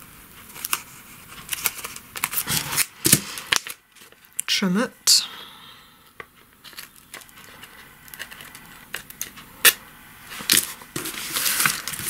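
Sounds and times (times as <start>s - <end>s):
paper envelopes rustling: 0.4s - 4.4s, 6.6s - 9.4s, 10.3s - 12.0s.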